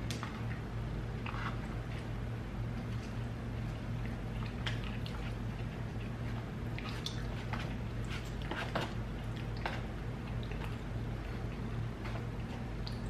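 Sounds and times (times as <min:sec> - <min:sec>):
chewing soft food: 0:00.0 - 0:13.0
fork working in food: 0:04.5 - 0:09.9.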